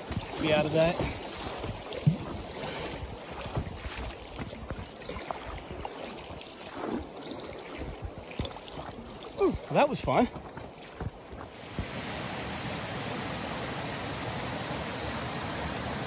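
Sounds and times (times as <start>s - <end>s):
whitewater rushing and splashing: 0.0s - 16.0s
wind on microphone: 11.0s - 16.0s.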